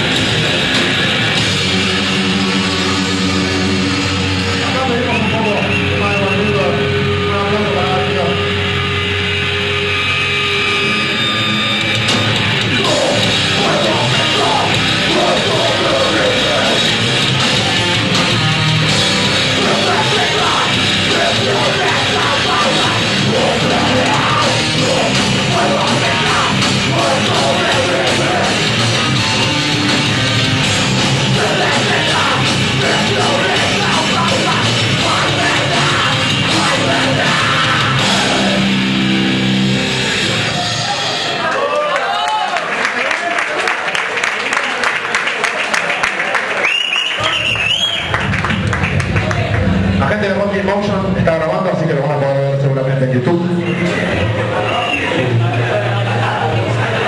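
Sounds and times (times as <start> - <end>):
heavy rock band playing: 0.0 - 41.5, 48.0 - 57.0
shouted vocals: 12.7 - 18.2, 19.0 - 39.2.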